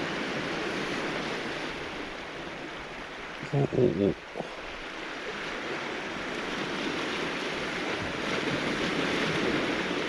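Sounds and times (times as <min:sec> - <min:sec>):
sea waves washing onto stony shore: 0:04.8 - 0:10.0.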